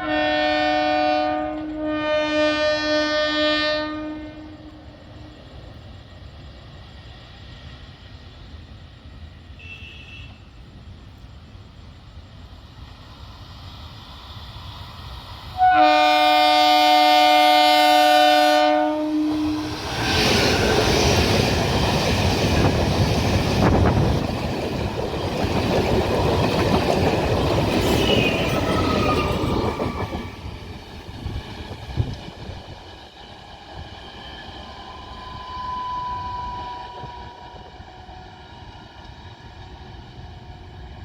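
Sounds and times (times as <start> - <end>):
train horn blast: 0.0 - 4.9, 9.6 - 10.5, 15.6 - 20.2, 35.2 - 38.7
train running and wheel noise: 0.0 - 41.0
high-pitched wheel squeal: 27.7 - 30.6, 34.1 - 37.6.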